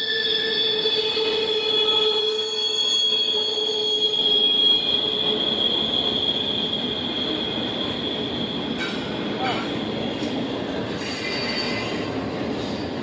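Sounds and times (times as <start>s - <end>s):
rumble of train cars: 0.0s - 13.0s
train wheels squealing: 0.0s - 13.0s.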